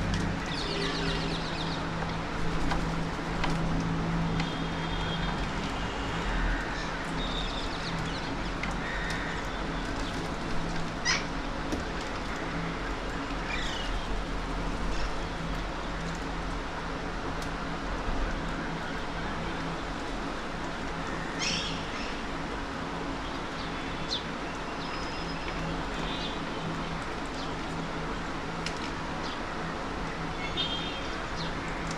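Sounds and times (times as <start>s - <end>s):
birds chirping: 0.0s - 3.0s.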